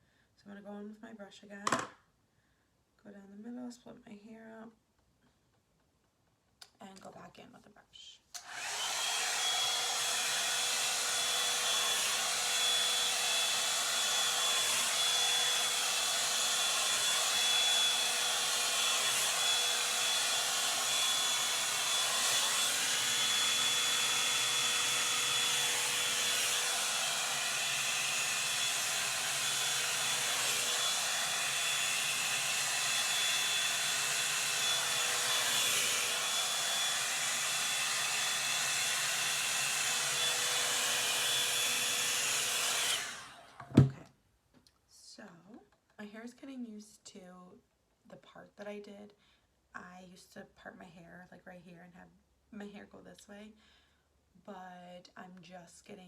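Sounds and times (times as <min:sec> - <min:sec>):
hair dryer brush blowing air: 0:08.4 - 0:44.0.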